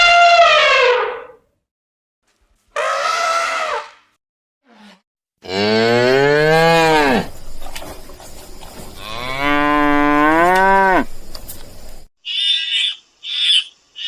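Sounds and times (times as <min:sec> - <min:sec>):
cow mooing: 0:05.4 - 0:07.3, 0:09.0 - 0:11.1.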